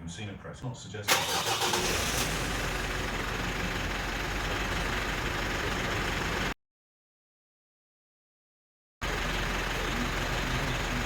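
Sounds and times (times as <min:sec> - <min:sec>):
car engine idling: 0:01.1 - 0:06.6, 0:09.0 - 0:11.0.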